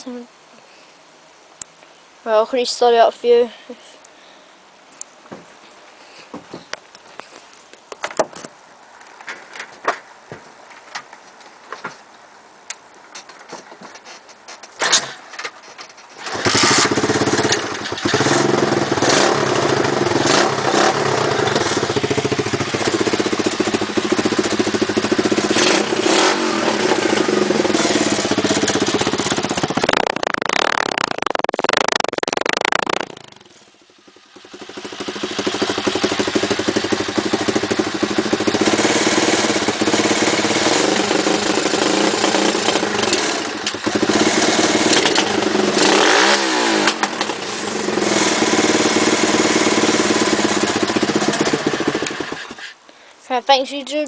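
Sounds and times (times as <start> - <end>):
small motorcycle engine revving: 16.2 - 52.8.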